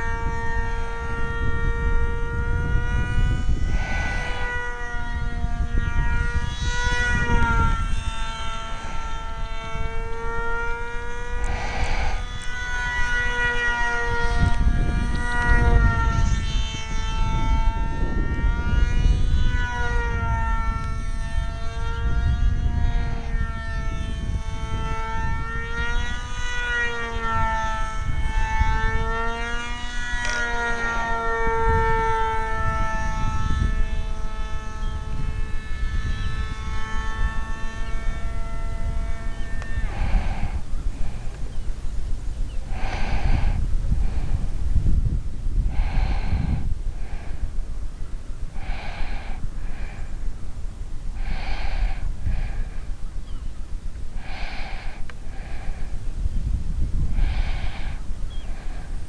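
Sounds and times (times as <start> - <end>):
electric motor whining: 0.0 - 59.0
low rumbling noise: 0.0 - 59.0.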